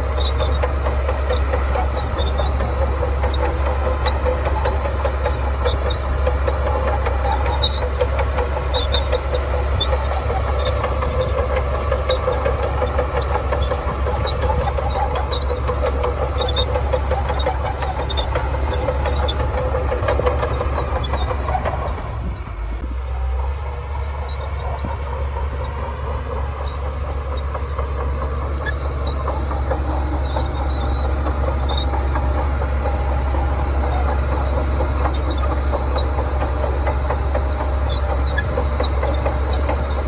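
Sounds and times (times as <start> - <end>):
fast mechanical rattle: 0.0 - 22.6, 23.8 - 40.0
diesel engine running: 0.0 - 40.0
faint short high squeaks: 24.2 - 36.7.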